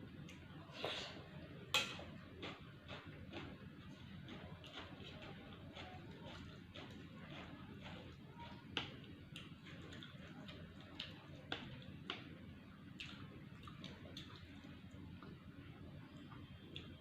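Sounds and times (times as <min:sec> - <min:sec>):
chewing crunches and mouth sounds: 0:02.0 - 0:12.3, 0:12.9 - 0:15.4.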